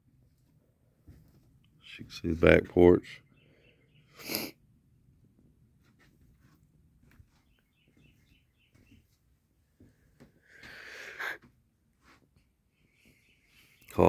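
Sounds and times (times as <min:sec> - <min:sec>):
faint bird chirping: 0:01.6 - 0:04.6, 0:07.0 - 0:11.4, 0:12.1 - 0:14.0.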